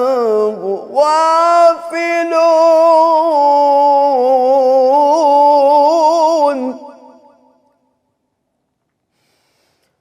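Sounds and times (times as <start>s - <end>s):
man reciting in melodic chant: 0.0s - 7.1s.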